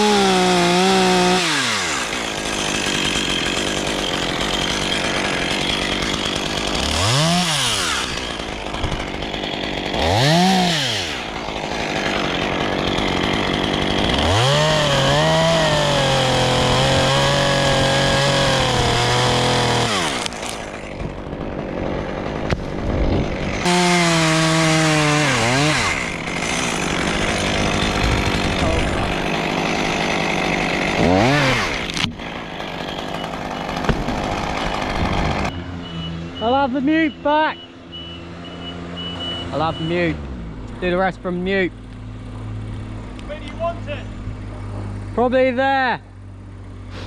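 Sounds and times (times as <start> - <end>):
chainsaw revving: 0.0 - 35.5.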